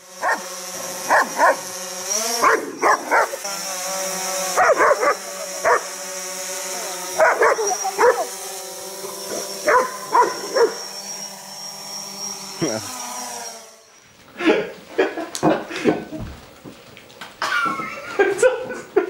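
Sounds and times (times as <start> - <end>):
drone propeller whine: 0.0 - 14.4
dog barking: 0.2 - 0.4, 1.1 - 1.6, 2.4 - 3.4, 4.6 - 5.9, 7.2 - 8.3, 9.6 - 10.8.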